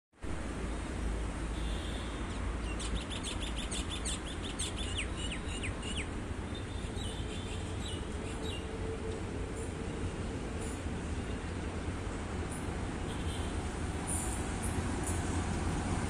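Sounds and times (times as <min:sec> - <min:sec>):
small birds chirping: 0:02.3 - 0:08.7.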